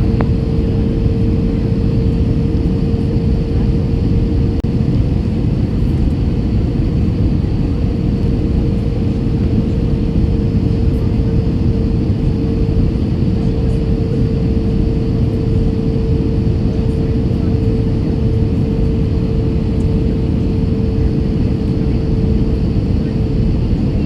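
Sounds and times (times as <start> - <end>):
aircraft cabin engine rumble: 0.0 - 24.0
constant humming tone: 0.0 - 24.0.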